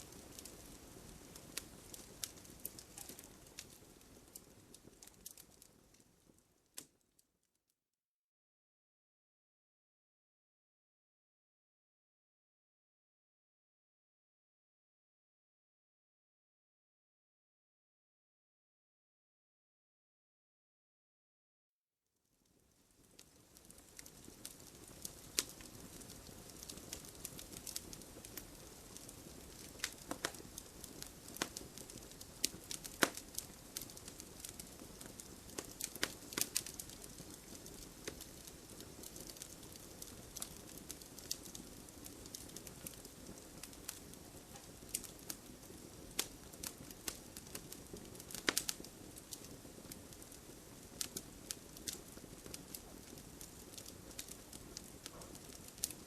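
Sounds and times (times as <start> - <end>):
fire crackling in fireplace: 0.0 - 7.3, 22.4 - 56.0.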